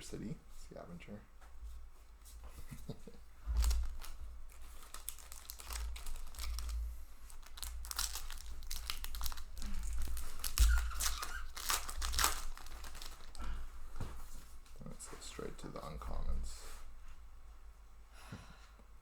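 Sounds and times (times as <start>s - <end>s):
foil wrapper crinkling and tearing: 3.5s - 13.6s.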